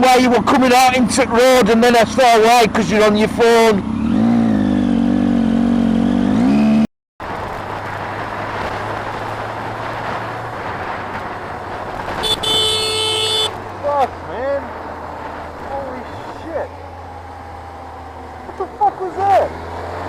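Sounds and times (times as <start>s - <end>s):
wind and road rush: 0.0s - 20.0s
motorcycle engine running: 2.1s - 6.8s
vehicle horn: 12.2s - 13.6s.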